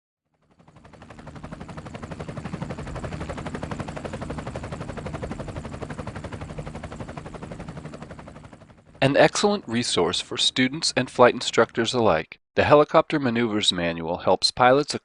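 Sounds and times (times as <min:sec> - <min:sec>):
helicopter rotor chopping: 0:00.3 - 0:12.1.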